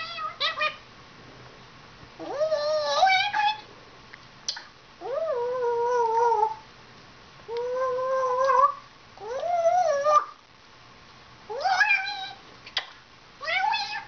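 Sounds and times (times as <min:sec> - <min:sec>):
parrot calls: 0:00.0 - 0:00.9, 0:02.2 - 0:03.7, 0:05.0 - 0:06.6, 0:07.5 - 0:10.4, 0:11.5 - 0:14.0.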